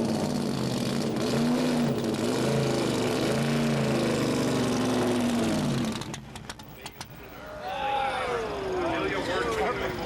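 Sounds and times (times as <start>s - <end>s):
race car engine revving: 0.0s - 6.6s.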